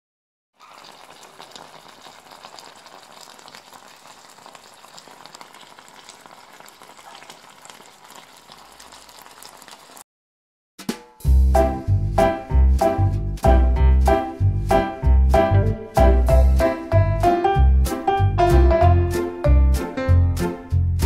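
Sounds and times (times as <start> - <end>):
food sizzling in oil: 0.6 - 10.0.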